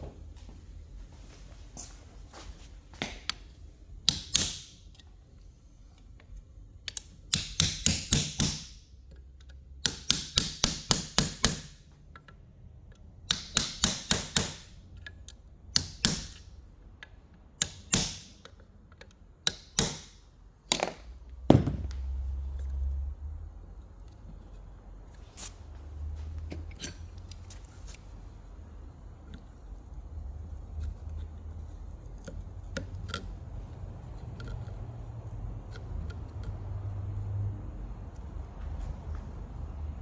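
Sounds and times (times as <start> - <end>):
heavy knock: 20.7 - 22.0.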